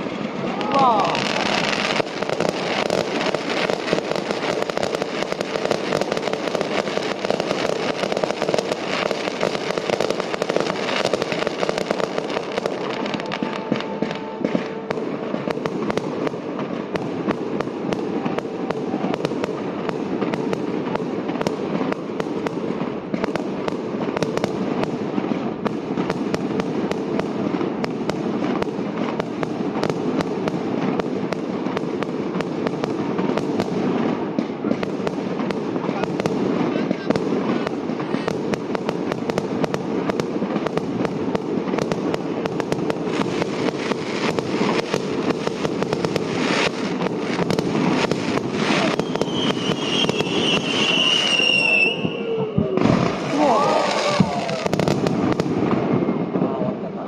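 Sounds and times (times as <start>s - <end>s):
fireworks bursting and crackling: 0.0s - 57.0s.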